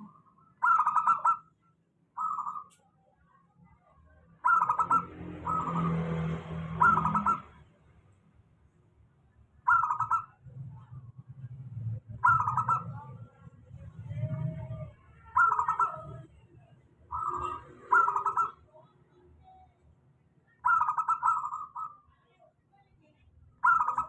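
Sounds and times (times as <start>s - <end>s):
dove cooing: 0.0s - 1.4s, 4.4s - 7.5s, 9.7s - 10.4s, 12.1s - 13.3s, 14.0s - 16.4s, 17.1s - 18.6s, 20.6s - 22.0s, 23.6s - 24.0s.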